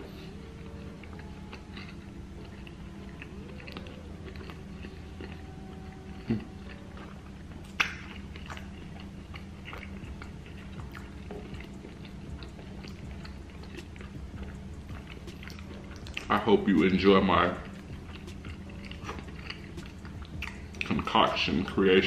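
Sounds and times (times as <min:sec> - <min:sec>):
person chewing food: 0:00.0 - 0:21.8
low hum: 0:00.0 - 0:22.0.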